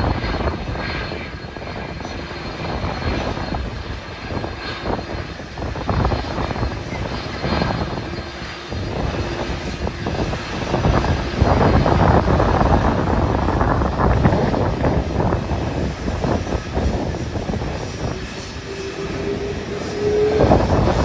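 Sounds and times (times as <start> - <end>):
airliner engines running: 0.0 - 21.0
wind buffeting microphone: 0.0 - 21.0.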